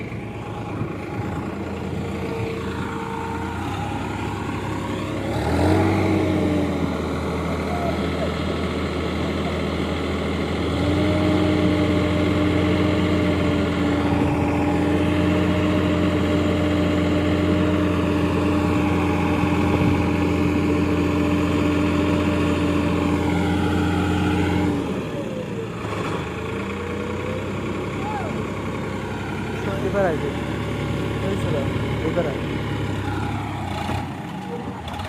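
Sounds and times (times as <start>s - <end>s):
heavy diesel engine revving: 0.0s - 35.0s.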